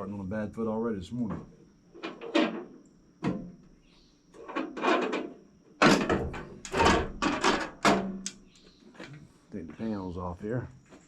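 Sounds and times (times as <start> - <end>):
metal scrapes and knocks: 4.4 - 8.0.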